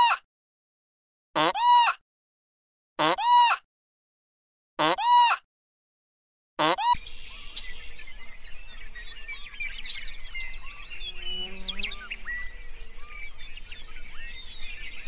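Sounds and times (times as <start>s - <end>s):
small birds chirping: 6.9s - 15.0s.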